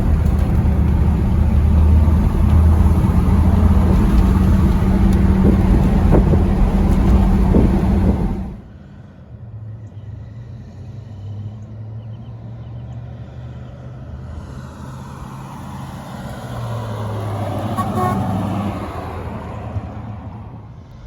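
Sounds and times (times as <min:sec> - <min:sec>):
car engine running: 0:00.0 - 0:08.7.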